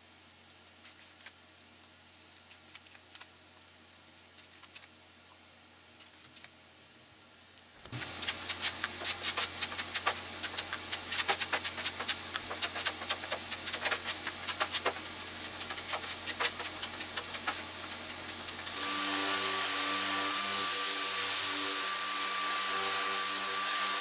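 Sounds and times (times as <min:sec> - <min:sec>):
steady low hum: 0:00.0 - 0:18.8
faint ticks and scrapes: 0:00.4 - 0:06.6
rapid clicks and scratching: 0:02.1 - 0:05.0, 0:05.9 - 0:06.6, 0:07.9 - 0:18.7.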